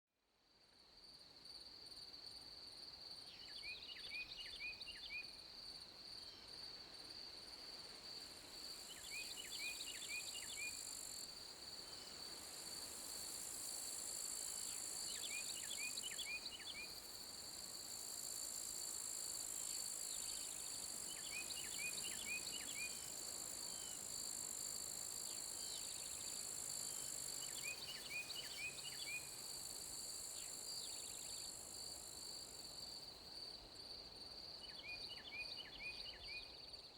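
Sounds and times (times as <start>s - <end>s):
songbird chirping: 3.2s - 5.4s, 8.7s - 10.9s, 14.4s - 17.1s, 19.6s - 24.1s, 25.2s - 32.9s, 34.5s - 36.8s
crickets trilling: 7.8s - 36.1s.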